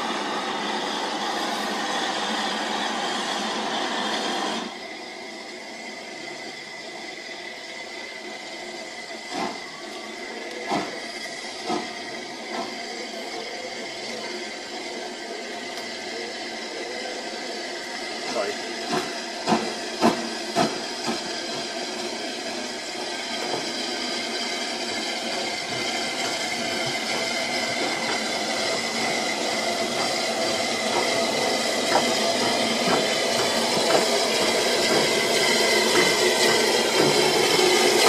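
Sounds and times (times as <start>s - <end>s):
steam locomotive hissing: 0.0s - 38.0s
train running noise: 0.0s - 38.0s.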